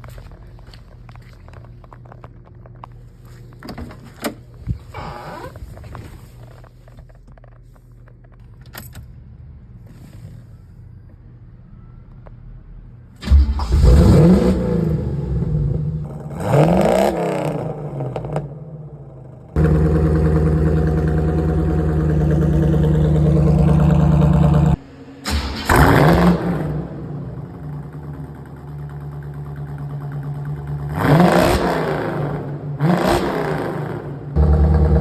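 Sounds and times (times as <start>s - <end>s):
car engine exhaust revving: 13.2s - 18.6s, 19.6s - 35.0s.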